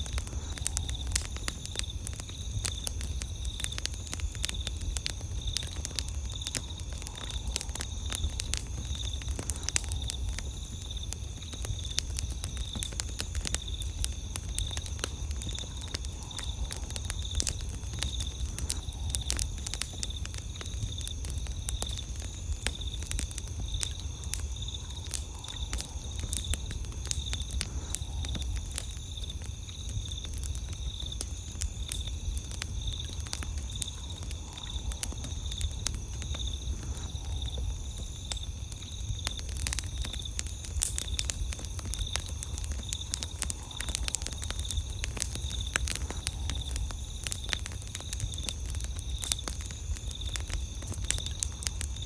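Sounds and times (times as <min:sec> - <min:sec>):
campfire crackling and popping: 0:00.0 - 0:52.0
night insects chorus: 0:00.0 - 0:52.0.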